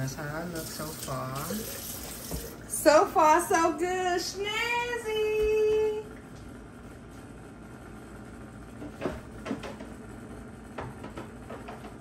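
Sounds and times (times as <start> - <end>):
kitchen items knocking and clattering: 8.8 - 9.9, 10.8 - 12.0.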